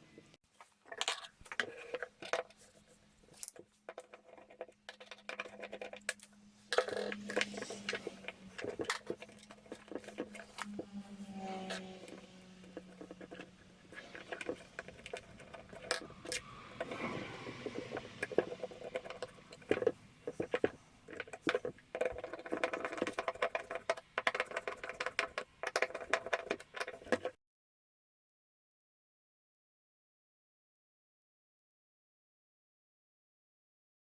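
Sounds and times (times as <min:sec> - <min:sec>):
small hard parts clicking and rattling: 0:00.5 - 0:27.4
brief low hum: 0:06.3 - 0:18.5.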